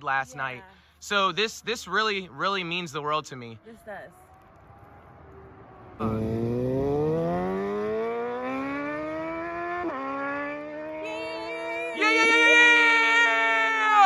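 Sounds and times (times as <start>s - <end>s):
motorcycle engine accelerating hard: 5.1s - 12.0s.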